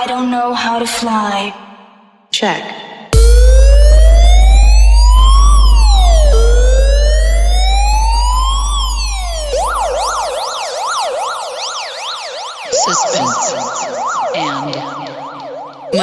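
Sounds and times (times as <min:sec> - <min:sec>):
deep bass boom: 0:03.2 - 0:10.3
electronic siren effect: 0:03.2 - 0:16.0.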